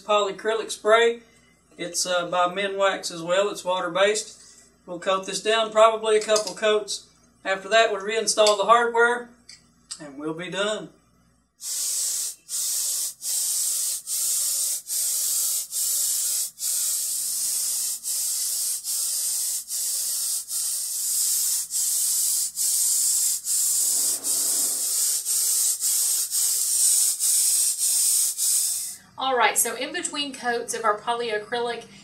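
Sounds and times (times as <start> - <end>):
aerosol can spraying hiss: 11.6 - 29.0.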